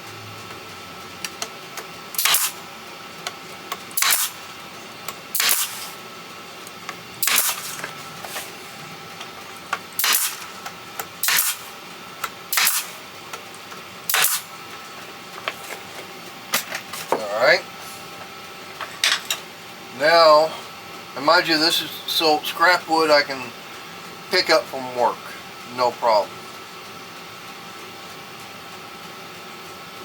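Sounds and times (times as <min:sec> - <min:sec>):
nail gun firing into wood: 0:02.2 - 0:02.6, 0:04.0 - 0:04.4, 0:05.3 - 0:05.9, 0:07.2 - 0:07.8, 0:10.0 - 0:10.5, 0:11.2 - 0:11.7, 0:12.5 - 0:13.0, 0:14.1 - 0:14.5
small nail gun clicks: 0:02.2 - 0:02.6, 0:03.9 - 0:04.4, 0:05.4 - 0:05.8, 0:07.2 - 0:07.6, 0:10.0 - 0:10.5, 0:11.2 - 0:11.6, 0:12.5 - 0:12.9, 0:14.1 - 0:14.4.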